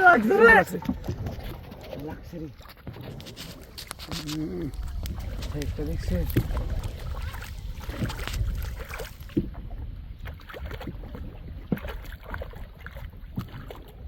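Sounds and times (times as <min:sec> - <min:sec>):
low wind rumble: 0:00.0 - 0:11.8
water moving around boat hull: 0:00.0 - 0:14.0.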